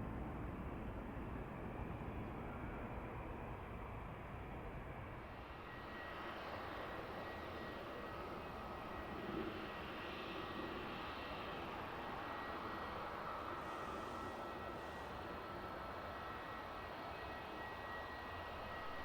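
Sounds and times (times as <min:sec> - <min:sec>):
high jet whine: 0:10.6 - 0:19.0
distant jet engines rumbling: 0:11.6 - 0:15.8.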